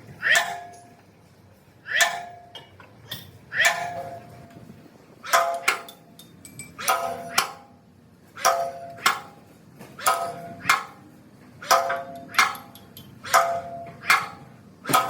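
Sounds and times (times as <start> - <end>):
hammer striking steel: 0.2 - 0.9, 1.9 - 2.7, 3.6 - 4.3, 5.3 - 7.8, 8.4 - 9.4, 10.0 - 11.0, 11.6 - 15.0.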